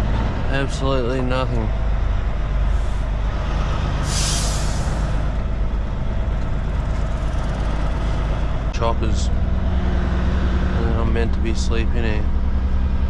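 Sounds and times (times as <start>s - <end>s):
truck engine running: 0.0s - 13.0s
air brake hiss: 4.0s - 5.1s.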